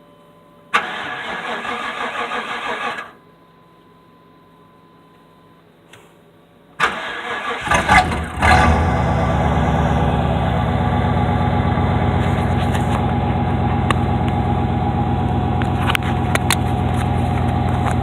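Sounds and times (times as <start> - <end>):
engine idling: 7.6 - 18.0.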